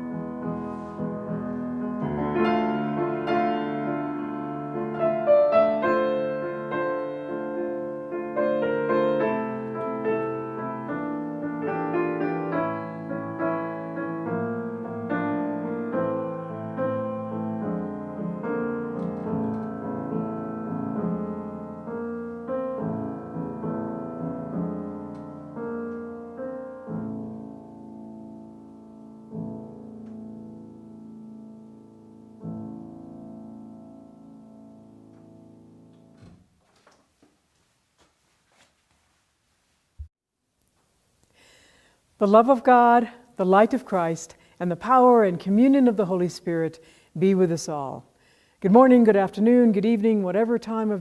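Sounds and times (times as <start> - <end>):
slow solo piano piece: 0.0 - 36.4.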